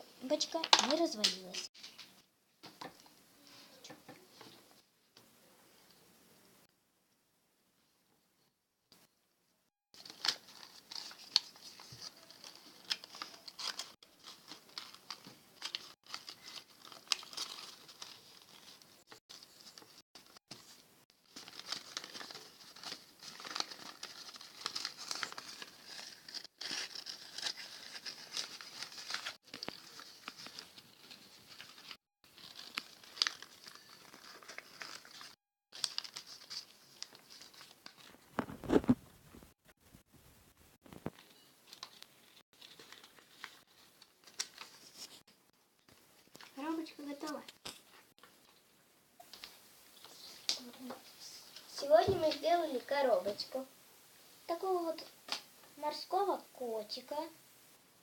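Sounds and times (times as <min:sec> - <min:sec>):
paper rustling and crinkling: 0:10.0 - 0:40.1, 0:40.8 - 0:48.6.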